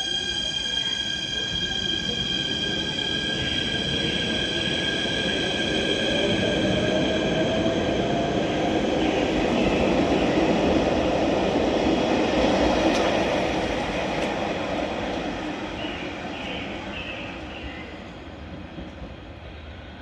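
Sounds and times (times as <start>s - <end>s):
high squeal: 0.0s - 7.4s
train running: 0.0s - 20.0s.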